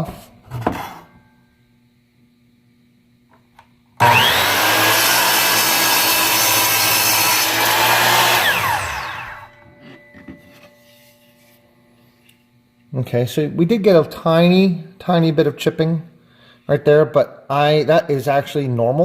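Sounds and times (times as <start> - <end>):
miter saw cutting: 4.0 - 9.6.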